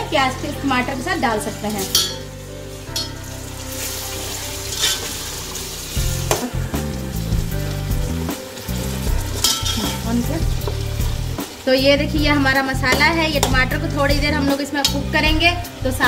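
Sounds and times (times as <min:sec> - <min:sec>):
food sizzling in hot oil: 0:00.0 - 0:16.0
metal spatula scraping pot: 0:03.8 - 0:06.5, 0:09.0 - 0:11.3
spices rattling into pot: 0:08.5 - 0:13.8.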